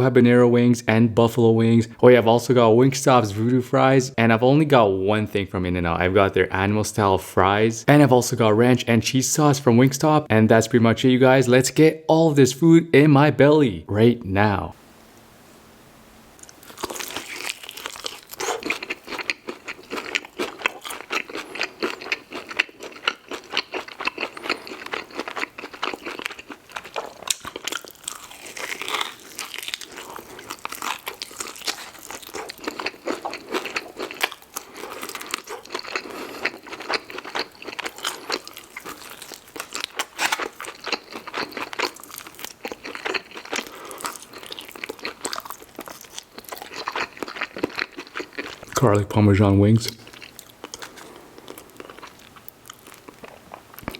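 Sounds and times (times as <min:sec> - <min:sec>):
crunchy bites and chewing: 0:16.4 - 0:48.7.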